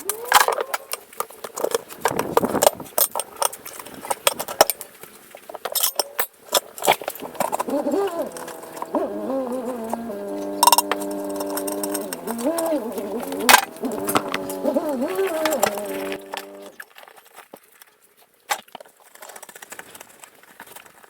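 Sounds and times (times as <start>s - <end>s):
metal tools clanking: 5.6s - 16.8s
tune of held notes: 7.2s - 16.8s.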